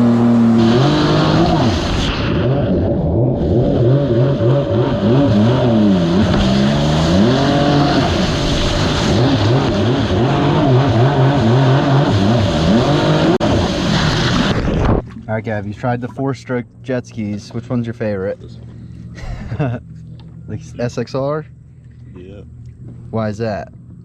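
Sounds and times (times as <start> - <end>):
jet ski engine revving: 0.0 - 24.0.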